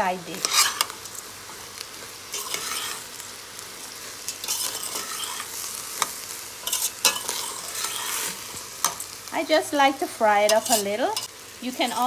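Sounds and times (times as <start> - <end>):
steady sizzle in oil: 0.0 - 12.0
spoon scraping metal pot: 0.4 - 0.9, 2.3 - 3.0, 4.3 - 5.5, 6.6 - 9.0, 10.5 - 11.3
rasp of grains being turned: 2.3 - 3.0, 6.6 - 8.4.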